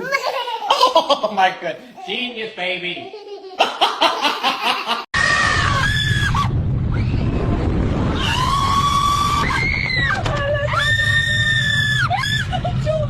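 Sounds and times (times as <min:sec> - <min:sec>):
burst of laughter: 0:03.6 - 0:05.1
low rumble: 0:05.2 - 0:13.0.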